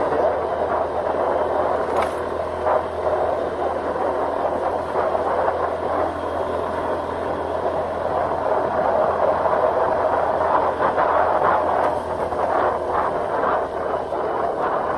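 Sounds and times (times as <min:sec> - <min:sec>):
scooter engine humming: 0:00.0 - 0:14.9
wind rushing over microphone: 0:00.0 - 0:14.9
tyre noise: 0:01.8 - 0:02.4.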